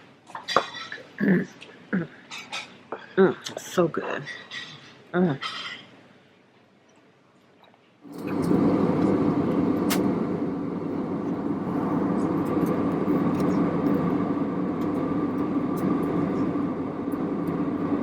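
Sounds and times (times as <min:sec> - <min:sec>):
van running low rumble: 0:08.1 - 0:18.0.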